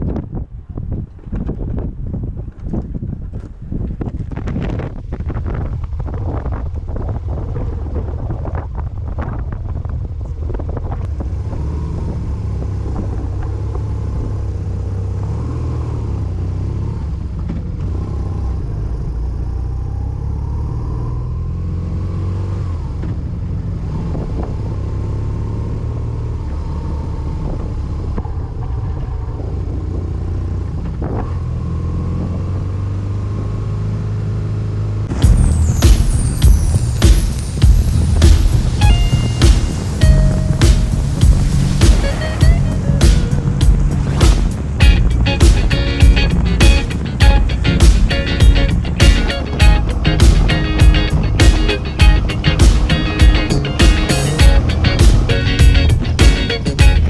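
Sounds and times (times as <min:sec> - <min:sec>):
wind noise: 0:00.0 - 0:14.8, 0:35.1 - 0:57.0
motorcycle engine rumbling: 0:35.1 - 0:57.0.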